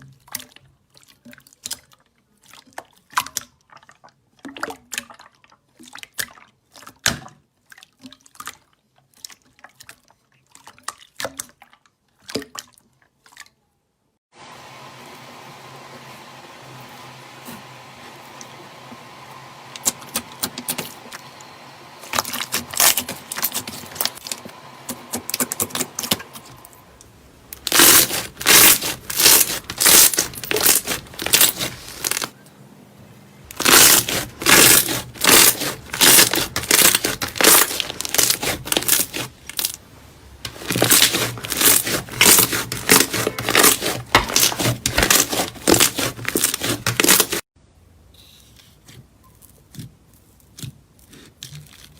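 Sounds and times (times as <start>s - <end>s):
slime squeezed with sticky crackles: 22.1s - 24.4s, 27.6s - 32.4s, 33.5s - 39.8s, 40.6s - 47.4s.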